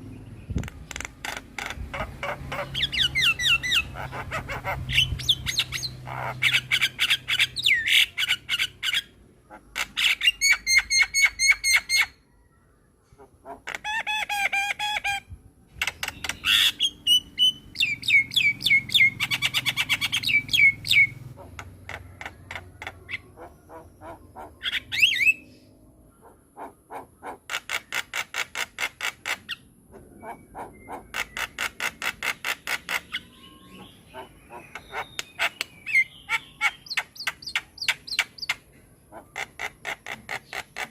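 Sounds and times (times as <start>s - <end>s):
myna bird singing: 0.0s - 40.9s.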